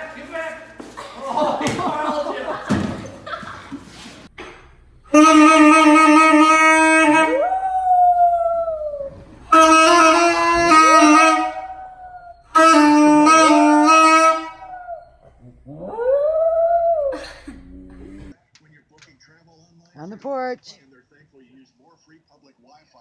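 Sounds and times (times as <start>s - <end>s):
wind instrument long notes: 5.1s - 7.6s, 8.8s - 15.0s
dog howling: 7.3s - 9.2s, 10.7s - 12.5s, 14.6s - 17.2s.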